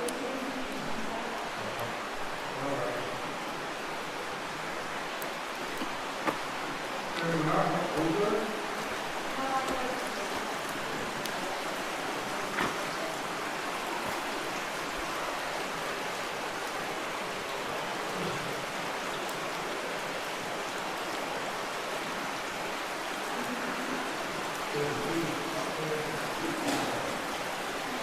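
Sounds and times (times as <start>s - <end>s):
creek water flowing: 0.0s - 28.0s.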